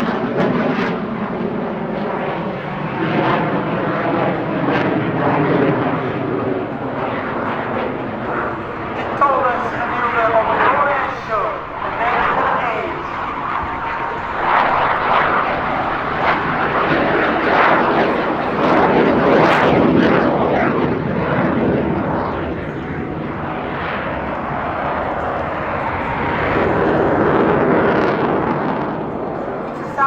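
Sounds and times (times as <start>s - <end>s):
jet aircraft engine noise: 0.0s - 30.0s.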